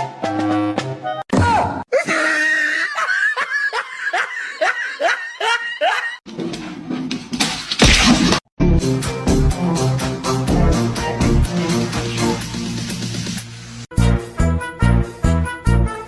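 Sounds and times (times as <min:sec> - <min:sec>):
person laughing: 0:01.9 - 0:06.2.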